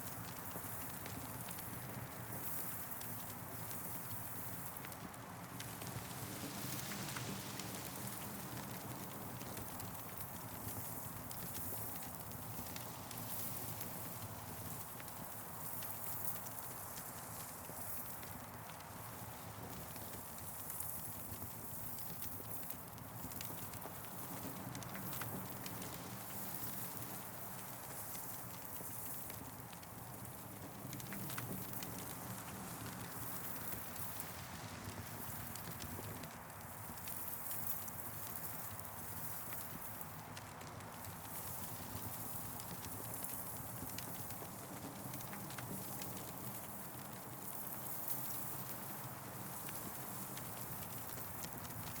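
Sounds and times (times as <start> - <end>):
campfire crackling: 0.0 - 52.0.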